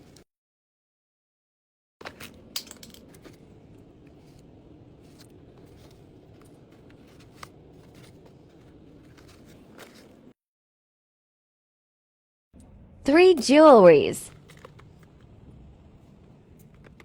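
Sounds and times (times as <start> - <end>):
packaging rustling: 3.0 - 10.3, 14.3 - 15.4.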